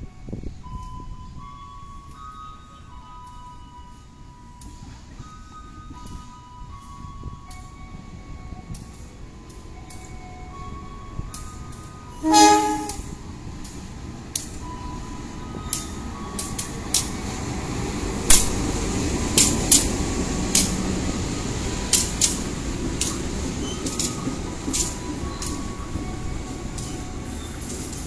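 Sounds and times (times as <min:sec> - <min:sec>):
train rumbling past: 0:00.0 - 0:28.0
wheels clacking over rail joints: 0:08.6 - 0:28.0
locomotive horn blast: 0:12.2 - 0:13.2.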